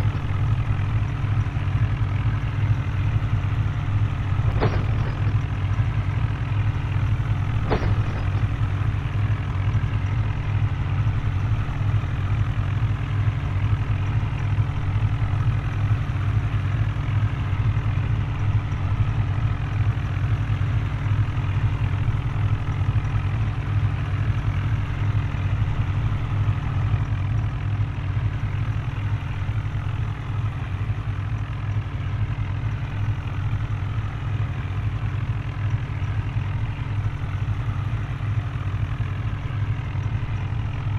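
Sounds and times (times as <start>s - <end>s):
tractor engine droning: 0.0s - 40.9s.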